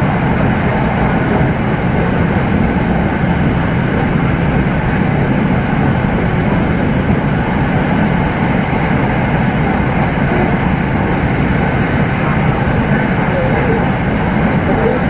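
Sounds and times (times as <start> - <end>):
train rumbling on board: 0.0 - 15.0.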